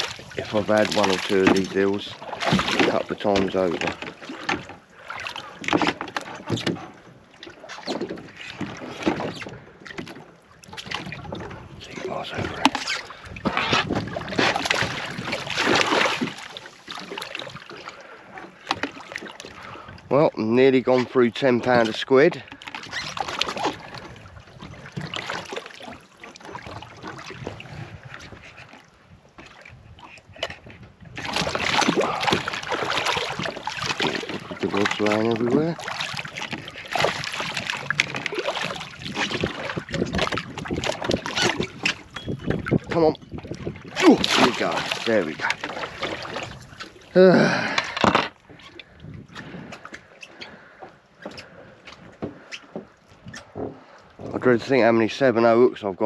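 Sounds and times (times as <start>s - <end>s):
knocks aboard a boat: 0.0s - 17.6s, 47.7s - 48.7s, 49.3s - 54.5s
water lapping: 0.0s - 55.8s
wind on the microphone: 10.7s - 16.3s, 26.6s - 46.8s, 48.0s - 49.8s.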